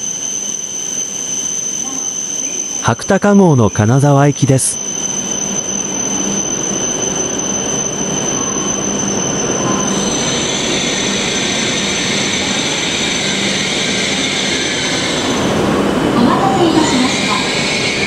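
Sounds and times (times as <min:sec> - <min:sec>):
thin high whine: 0:00.0 - 0:18.0
train equipment humming: 0:00.0 - 0:18.0
rushing noise: 0:04.8 - 0:18.0.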